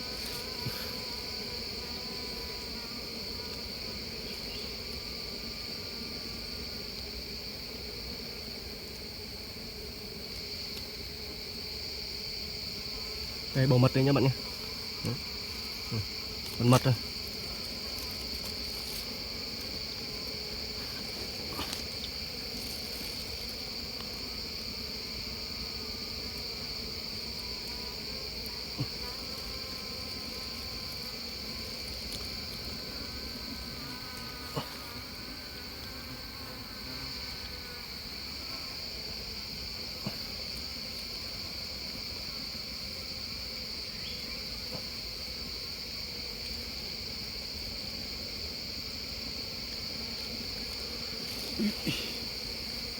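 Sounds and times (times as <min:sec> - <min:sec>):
high-pitched insect drone: 0:12.1 - 0:45.9.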